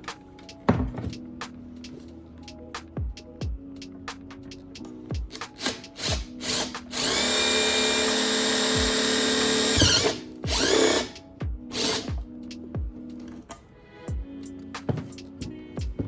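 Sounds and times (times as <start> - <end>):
background music with steady beat: 0.0 - 16.0
handheld power tool running: 5.6 - 11.2, 11.8 - 12.1.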